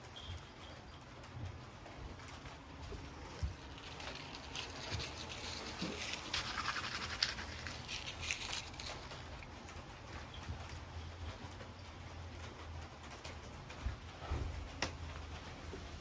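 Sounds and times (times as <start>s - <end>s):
cat scrabbling and scratching: 1.7s - 10.9s.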